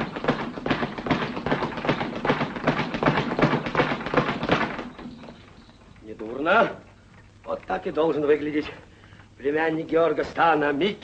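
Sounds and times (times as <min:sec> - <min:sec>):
rapid irregular tapping and clacking: 0:00.0 - 0:06.3.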